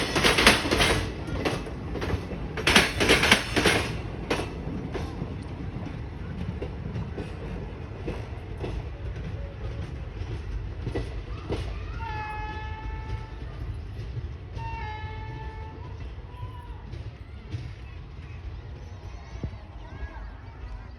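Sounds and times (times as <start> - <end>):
train wheel knocks: 0.0 - 15.7
train rumbling: 0.0 - 20.9.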